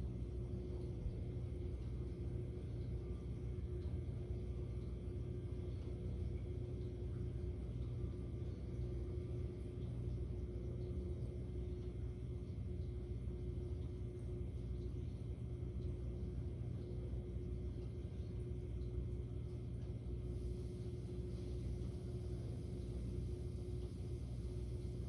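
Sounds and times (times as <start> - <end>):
faint constant hum: 0.0 - 25.0
steady low rumble: 20.3 - 25.0.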